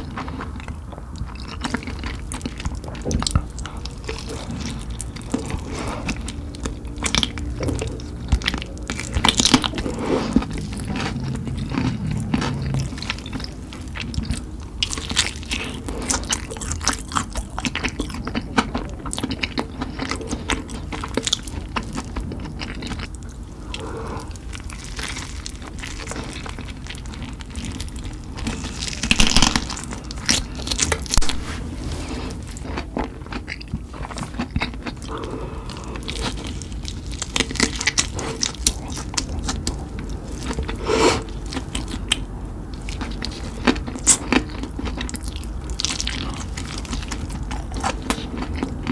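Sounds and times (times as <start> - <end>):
wet chewing: 0.0 - 48.9
crunchy bites: 21.1 - 31.4.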